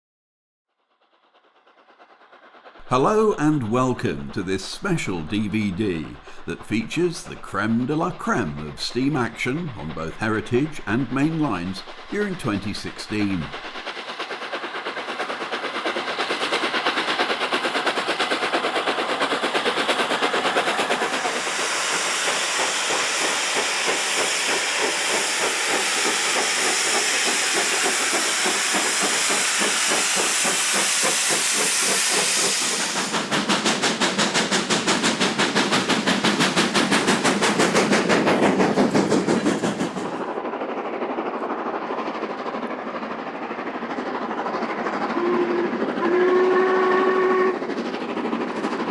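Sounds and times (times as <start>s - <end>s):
hiss of steam: 0.8s - 48.9s
steam locomotive exhaust beats: 0.9s - 48.9s.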